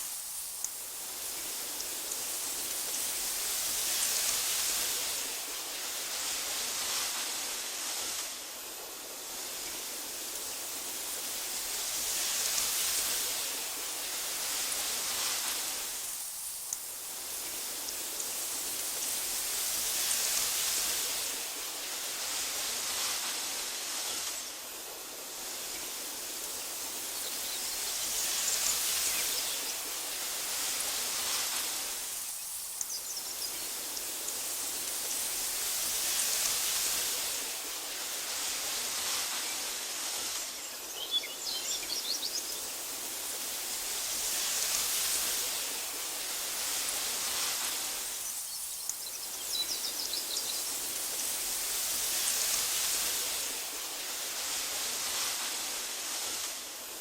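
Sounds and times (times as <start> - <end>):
wind through grass: 0.0 - 57.0
faint bird chirps: 32.1 - 34.8, 48.1 - 50.9.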